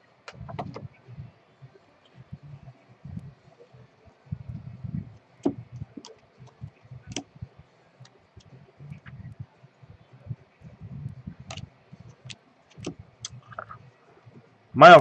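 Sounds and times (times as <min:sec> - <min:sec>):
soft low thuds: 0:04.3 - 0:07.6, 0:08.8 - 0:12.1.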